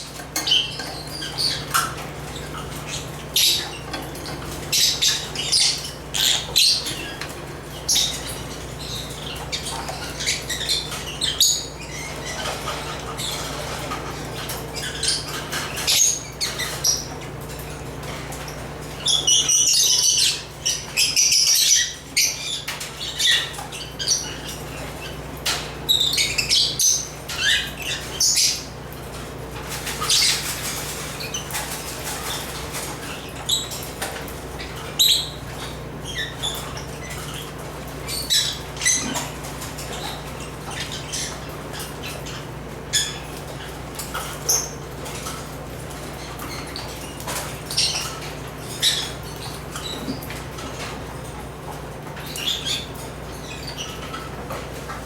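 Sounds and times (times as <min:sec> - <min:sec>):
lovebirds chirping and squawking: 0:00.0 - 0:55.0.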